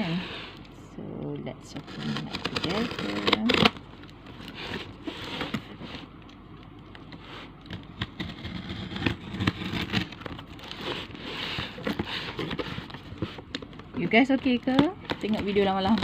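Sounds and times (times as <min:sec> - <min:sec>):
cardboard box being opened: 0:07.4 - 0:13.7.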